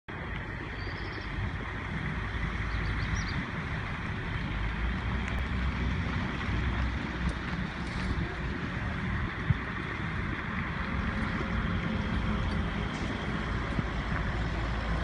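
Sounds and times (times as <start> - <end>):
truck rumbling on road: 0.1 - 15.0.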